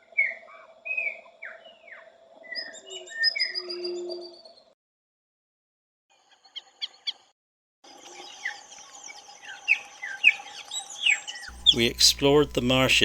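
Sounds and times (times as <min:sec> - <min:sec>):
sharp bird chirps: 0:00.0 - 0:04.7, 0:08.0 - 0:12.0
faint steady hum: 0:11.5 - 0:13.0.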